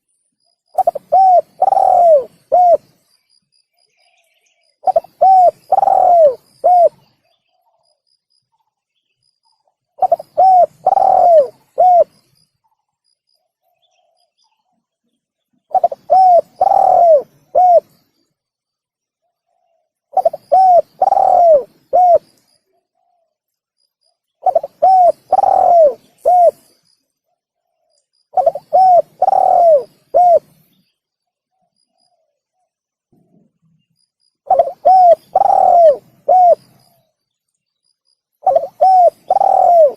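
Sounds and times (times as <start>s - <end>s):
dove cooing: 0.8s - 2.9s, 4.8s - 7.6s, 10.0s - 12.2s, 15.7s - 18.0s, 19.5s - 22.3s, 24.4s - 26.7s, 28.3s - 30.6s, 34.4s - 36.8s, 38.4s - 39.9s.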